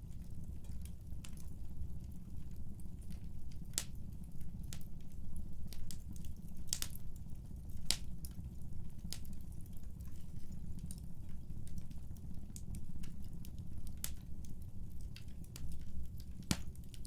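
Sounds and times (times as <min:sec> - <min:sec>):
low rumble of flames: 0:00.0 - 0:17.0
wood fire crackling pops: 0:00.0 - 0:17.0.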